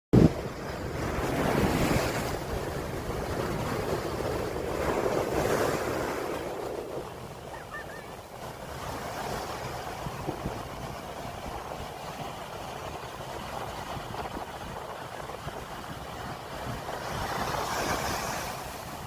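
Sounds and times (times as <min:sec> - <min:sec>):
heavy surf breaking on shore: 0:00.2 - 0:19.0
wind rumbling on microphone: 0:00.2 - 0:19.0.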